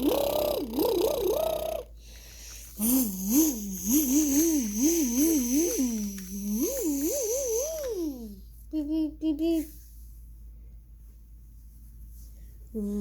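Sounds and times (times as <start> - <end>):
child making engine noises: 0.0 - 1.9, 2.8 - 9.7.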